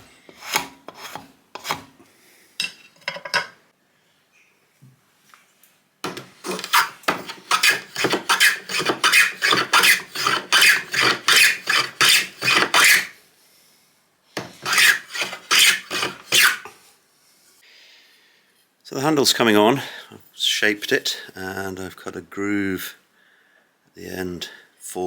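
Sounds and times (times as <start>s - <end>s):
wood rasp strokes on wood: 6.1s - 13.1s, 14.5s - 16.8s.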